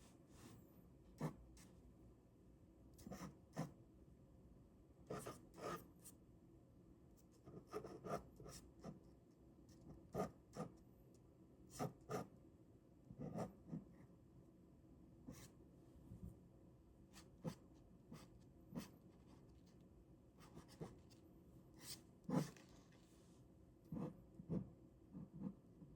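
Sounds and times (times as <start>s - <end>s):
ballpoint pen scratching on paper: 3.0s - 3.8s, 5.1s - 5.9s, 7.4s - 9.0s, 9.7s - 10.8s, 11.7s - 12.3s, 13.2s - 14.0s, 20.4s - 21.2s, 21.8s - 22.8s, 23.9s - 25.7s.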